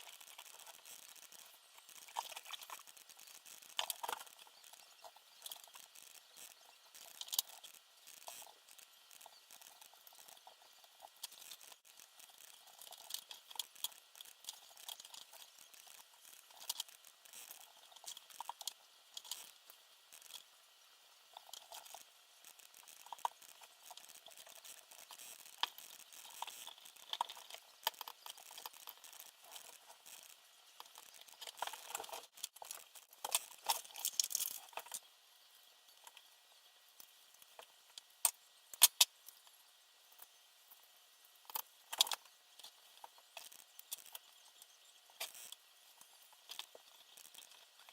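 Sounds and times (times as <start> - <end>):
small parts clicking and tapping: 0.0 - 47.9.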